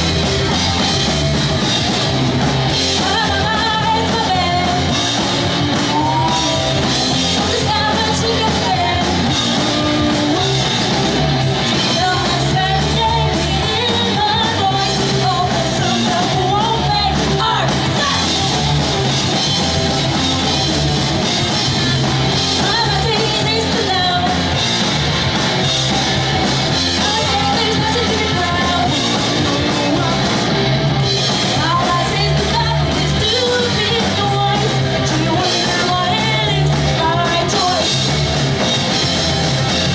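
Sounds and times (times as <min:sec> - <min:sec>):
pop-punk band playing: 0:00.0 - 0:39.9
lead vocal singing: 0:02.7 - 0:10.9, 0:11.6 - 0:18.8, 0:22.4 - 0:24.7, 0:26.7 - 0:30.6, 0:31.3 - 0:38.2.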